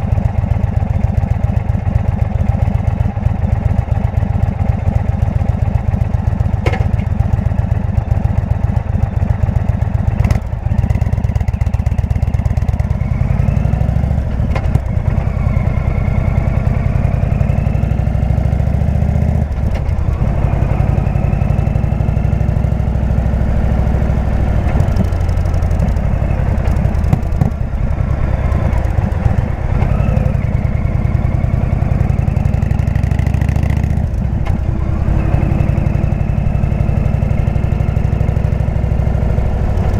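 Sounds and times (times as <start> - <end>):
motorcycle engine revving: 9.5 - 39.9.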